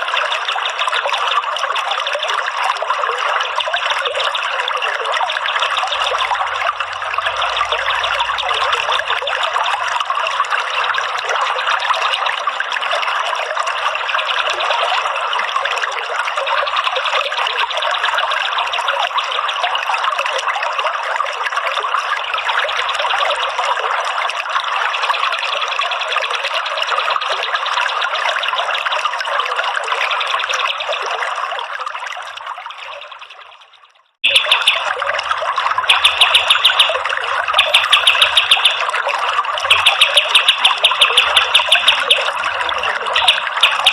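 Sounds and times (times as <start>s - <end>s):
trickling running water: 0.0s - 43.9s.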